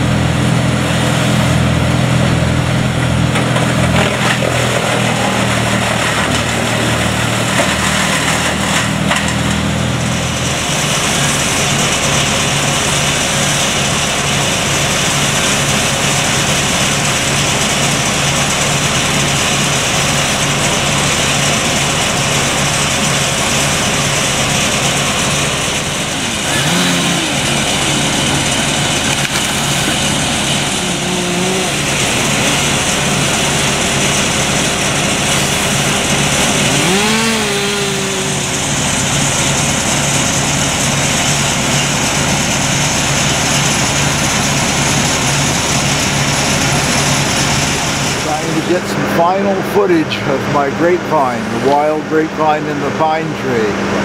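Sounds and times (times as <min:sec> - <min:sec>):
power equipment engine running: 0:00.0 - 0:54.0.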